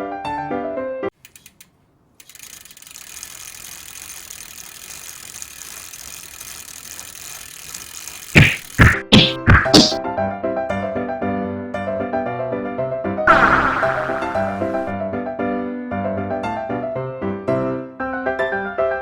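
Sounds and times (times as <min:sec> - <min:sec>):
bicycle freewheel ticking: 0:01.2 - 0:08.8
loud knocks: 0:08.4 - 0:10.0
piano music: 0:13.3 - 0:15.0.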